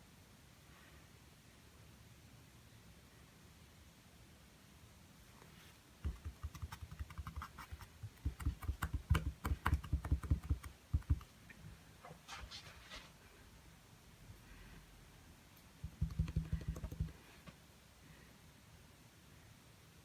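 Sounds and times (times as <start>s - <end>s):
paintbrush tapping on canvas: 6.0s - 11.3s, 15.8s - 17.2s.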